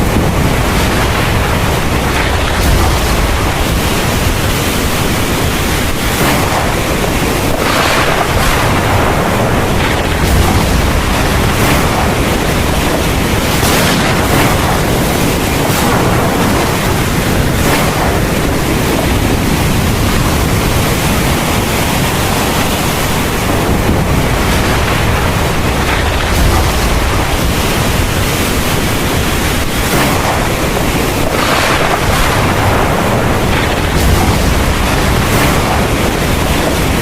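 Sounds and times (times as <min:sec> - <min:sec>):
deep rumble of thunder: 0:00.0 - 0:37.0
heavy rain pouring: 0:00.0 - 0:37.0.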